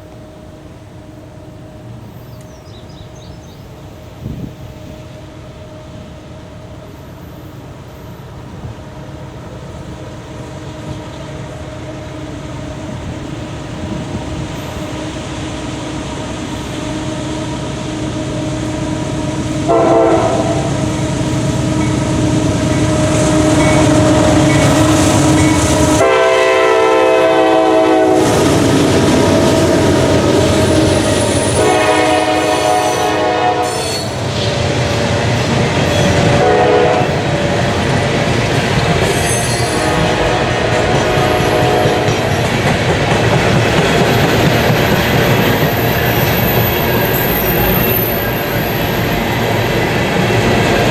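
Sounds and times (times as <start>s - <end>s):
diesel locomotive engines: 0.0s - 50.9s
train wheel noise: 0.0s - 50.9s
locomotive horn blasts: 19.3s - 20.8s, 22.7s - 28.4s, 30.5s - 34.2s, 36.0s - 37.2s, 39.2s - 42.3s.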